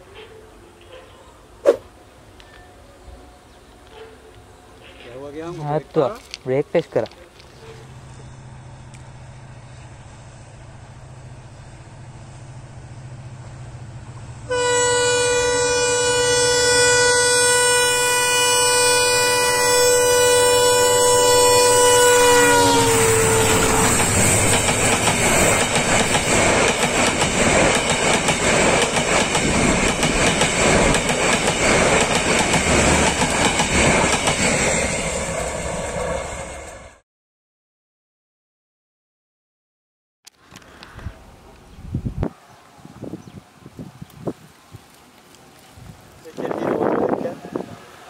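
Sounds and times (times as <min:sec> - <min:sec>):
diesel locomotive horn: 0:14.4 - 0:26.4.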